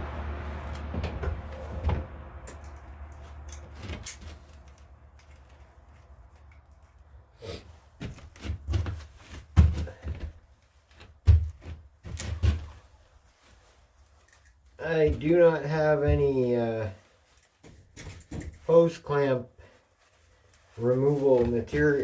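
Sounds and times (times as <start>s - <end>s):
dull low rumble: 0.0s - 3.8s
knocks and clunks of tools: 0.8s - 2.8s.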